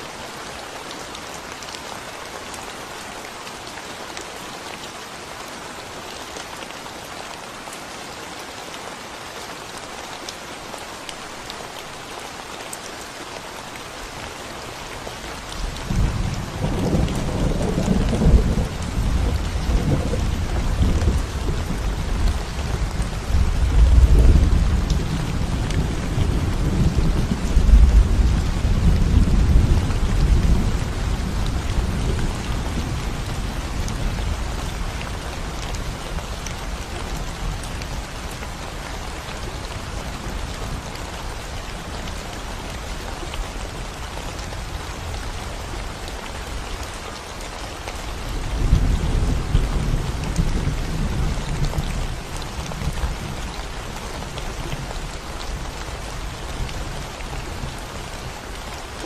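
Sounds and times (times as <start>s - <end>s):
rain on concrete road: 0.0s - 59.0s
rumble of thunder: 15.7s - 35.2s.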